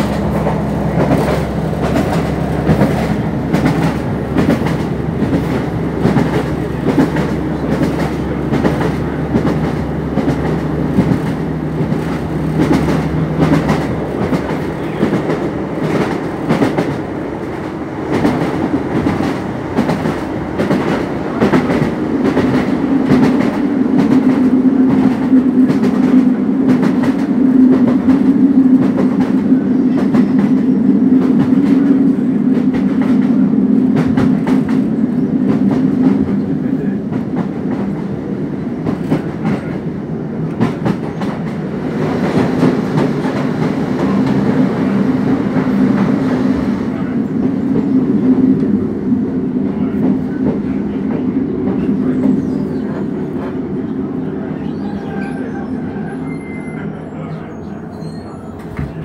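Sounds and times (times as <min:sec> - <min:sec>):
train wheels clicking over rail: 0:00.0 - 0:36.5
loud diesel train engine drone: 0:00.0 - 0:59.0.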